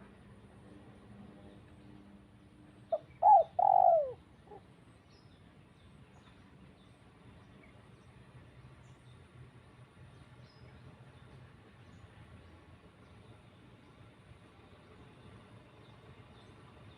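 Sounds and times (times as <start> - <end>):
dove-like bird cooing: 2.9 - 4.7.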